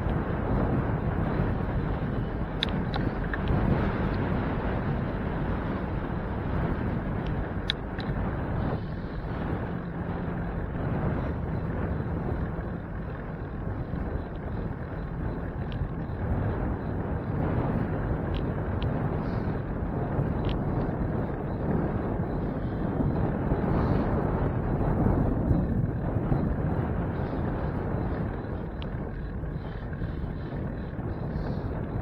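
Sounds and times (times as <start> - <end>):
road noise: 0.0 - 32.0
wind rushing on microphone: 0.0 - 32.0
faint ticks: 1.2 - 4.8, 6.6 - 9.6, 10.5 - 21.1, 26.4 - 32.0.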